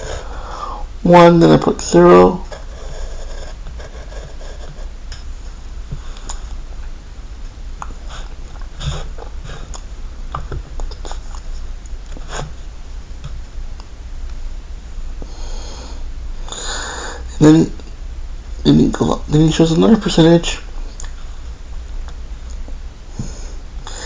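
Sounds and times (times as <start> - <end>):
steady low hum: 0.0 - 24.0
faint clicks and scratches: 2.4 - 5.3
breathing and sniffing: 8.0 - 9.8, 15.2 - 17.3, 23.1 - 24.0.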